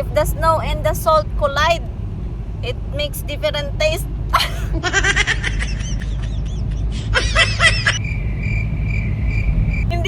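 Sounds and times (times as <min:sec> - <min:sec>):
car engine rumble and road noise: 0:00.0 - 0:10.0
woman laughing: 0:04.3 - 0:08.0.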